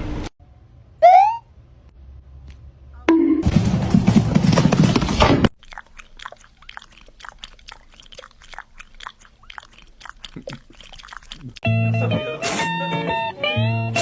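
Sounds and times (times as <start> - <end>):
crunchy chewing: 5.5 - 11.6.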